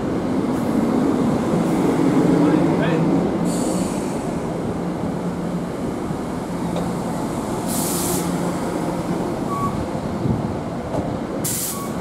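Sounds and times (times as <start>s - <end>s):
train rumble and hum: 0.0s - 12.0s
air hiss: 7.7s - 8.4s, 11.4s - 12.0s.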